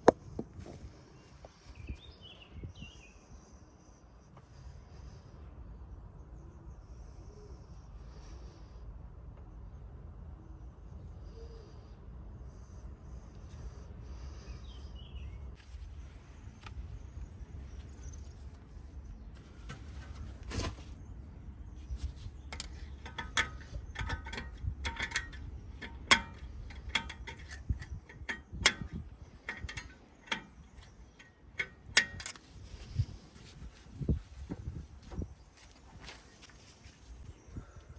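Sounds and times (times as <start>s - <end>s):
low steady rumble: 0.0s - 37.9s
sharp metallic clicks and clinks: 22.5s - 32.5s.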